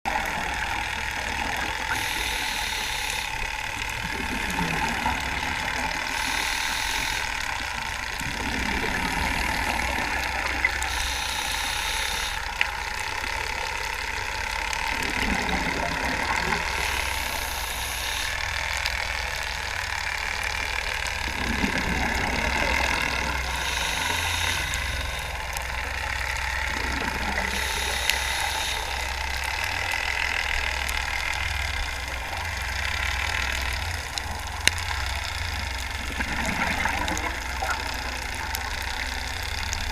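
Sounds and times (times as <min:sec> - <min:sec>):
steady low rumble: 0:00.1 - 0:39.9
diver breathing through regulator: 0:01.8 - 0:12.9, 0:15.2 - 0:20.2, 0:21.3 - 0:31.3
exhaled bubbles rushing: 0:03.9 - 0:06.2, 0:08.1 - 0:10.9, 0:14.9 - 0:18.4, 0:21.1 - 0:27.8, 0:35.8 - 0:39.9.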